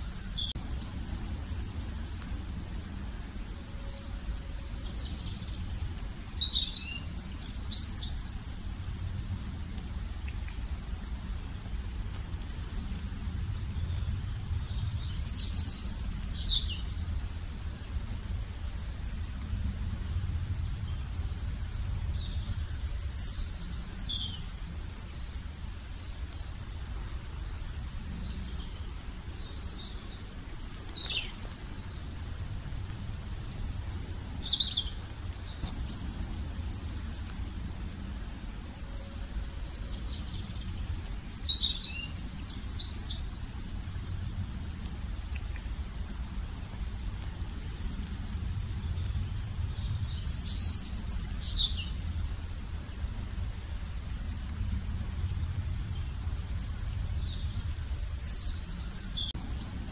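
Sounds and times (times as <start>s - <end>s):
birds chirping and singing: 0.0s - 2.3s, 3.4s - 8.7s, 14.7s - 17.8s, 20.6s - 25.4s, 33.4s - 43.8s, 49.8s - 52.2s, 55.8s - 59.8s
faint low rumble: 0.0s - 59.9s.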